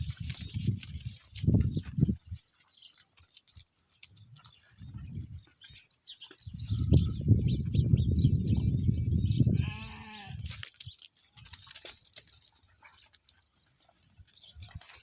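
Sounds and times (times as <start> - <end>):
small birds chirping: 0.0 - 15.0
goats bleating: 9.6 - 10.4.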